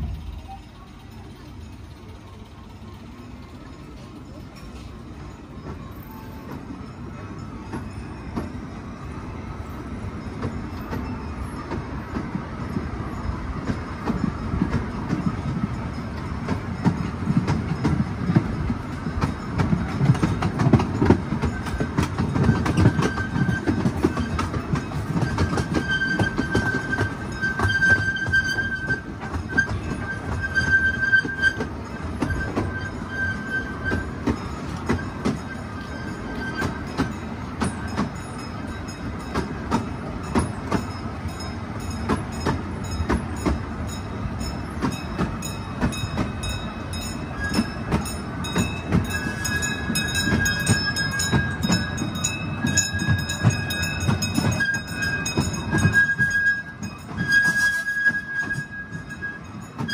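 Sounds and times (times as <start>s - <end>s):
small train rumbling and rattling: 0.0s - 59.9s.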